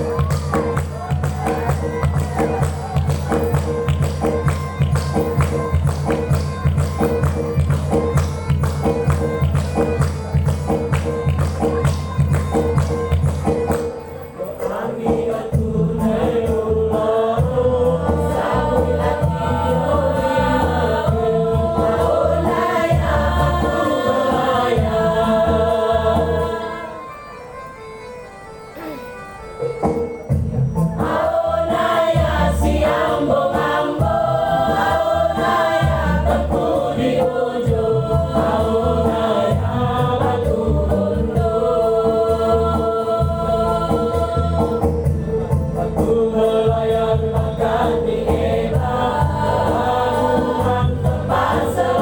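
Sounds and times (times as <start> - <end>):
music with beat and heavy bass: 0.0 - 13.7
choir singing: 14.3 - 27.2, 30.9 - 52.0.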